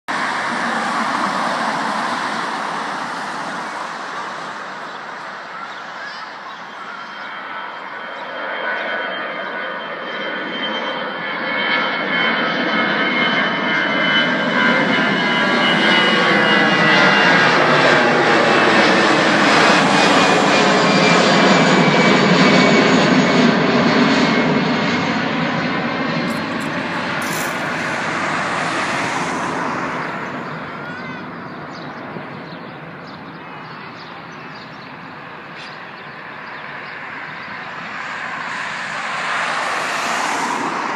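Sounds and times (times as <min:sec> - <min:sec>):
jet airliner passing: 0:00.1 - 0:40.9.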